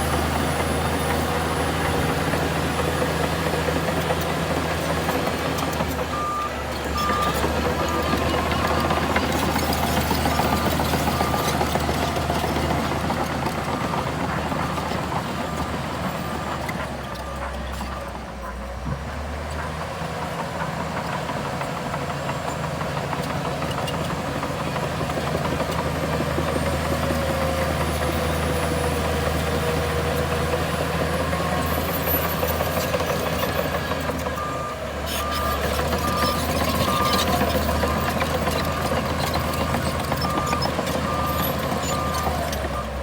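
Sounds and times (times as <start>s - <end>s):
heavy diesel engine running: 0.0s - 43.0s
reversing alarm beeping: 5.8s - 16.6s, 31.2s - 43.0s.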